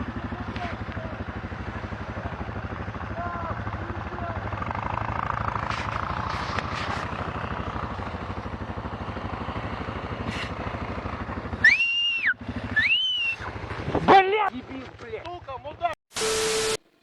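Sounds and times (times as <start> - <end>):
pulsing vehicle engine: 0.0 - 16.0
loud high-pitched sound: 16.1 - 16.8.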